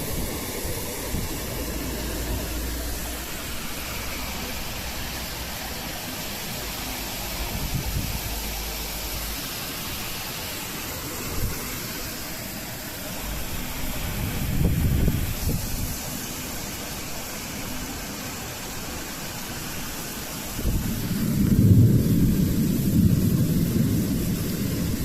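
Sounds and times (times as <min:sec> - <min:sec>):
wind buffeting microphone: 0:00.0 - 0:03.8, 0:07.3 - 0:08.8, 0:13.6 - 0:16.1, 0:20.5 - 0:25.0
strong storm wind: 0:00.0 - 0:17.8, 0:18.5 - 0:25.0.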